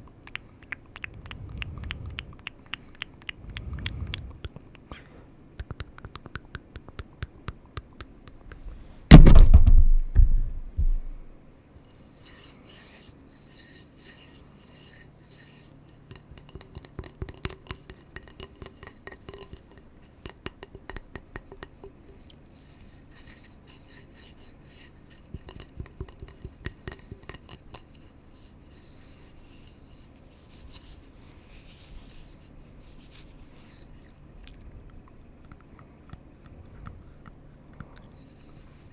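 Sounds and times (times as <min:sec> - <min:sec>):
loud thump: 0:09.1 - 0:11.3.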